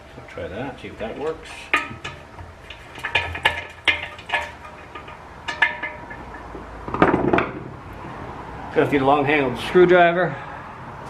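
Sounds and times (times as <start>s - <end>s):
metal hardware rattle: 1.4s - 7.7s.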